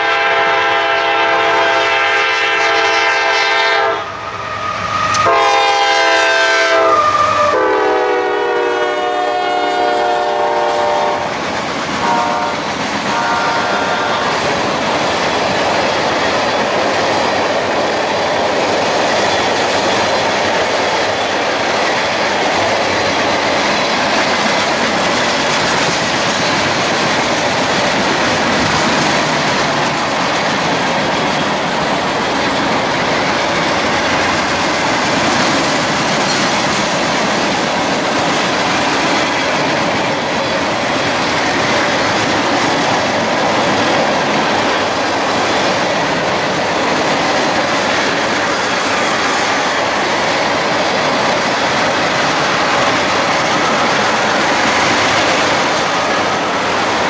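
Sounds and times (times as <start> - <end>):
train horn blasts: 0.0 - 11.3, 12.0 - 14.5
train passing at speed: 0.0 - 57.0
wheels clacking over rail joints: 10.1 - 57.0.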